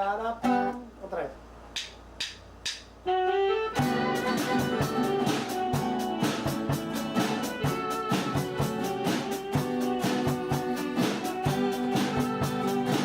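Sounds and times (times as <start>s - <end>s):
drum kit beat: 1.8s - 3.0s, 3.8s - 13.0s
band playing instrumental: 3.1s - 13.0s.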